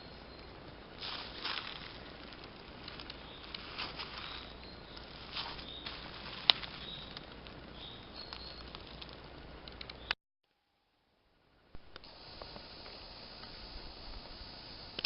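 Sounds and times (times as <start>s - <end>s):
high bird notes: 0.0s - 9.1s
forest rustle: 0.0s - 10.1s, 11.4s - 15.0s
small crackles and ticks: 0.0s - 10.2s, 11.9s - 15.0s.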